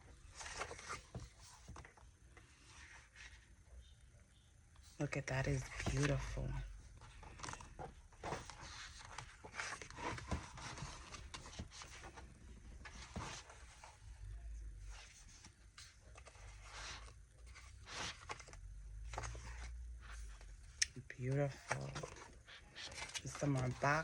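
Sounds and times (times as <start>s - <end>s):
sticker sheets rustling: 5.4s - 24.0s.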